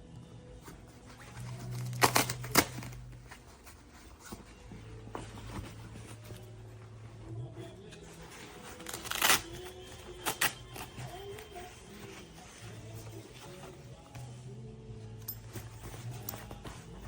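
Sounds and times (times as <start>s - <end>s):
crinkling and rustling: 0.6s - 17.0s.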